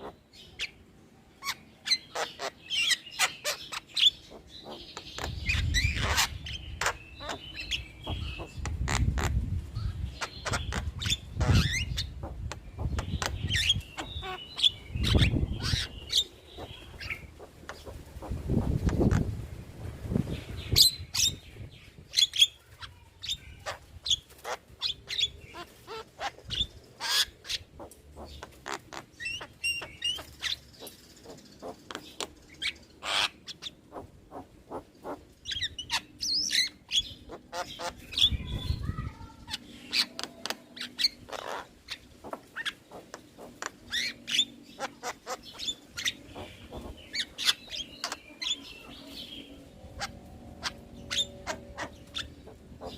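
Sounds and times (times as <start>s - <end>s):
low rumble: 48.8s - 52.9s.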